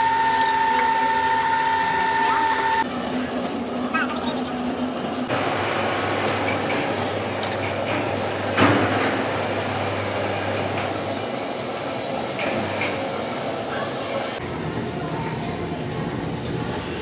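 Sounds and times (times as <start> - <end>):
machine hum: 0.0 - 3.8.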